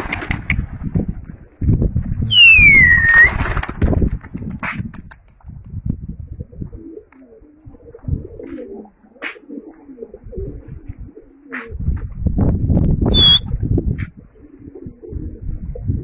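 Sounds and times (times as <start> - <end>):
short high chirp: 2.3 - 3.3, 13.1 - 13.4
pigeons cooing: 6.3 - 12.0, 14.0 - 16.0.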